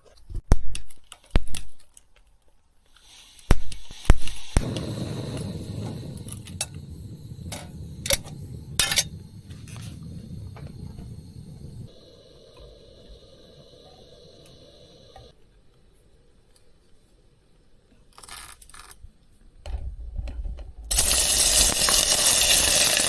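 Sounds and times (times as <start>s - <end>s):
steady low rushing sound: 4.6s - 15.2s
metal cookware clinking: 7.5s - 9.2s.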